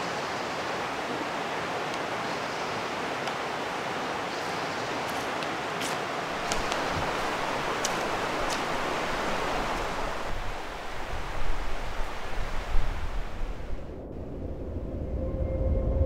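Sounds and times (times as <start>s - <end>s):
mountain stream rushing: 0.0s - 13.9s.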